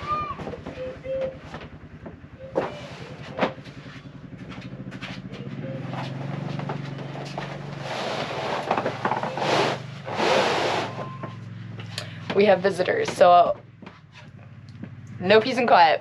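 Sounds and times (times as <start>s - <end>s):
vehicle engine hum: 0.0s - 16.0s
rushing crunching noise: 2.7s - 11.2s.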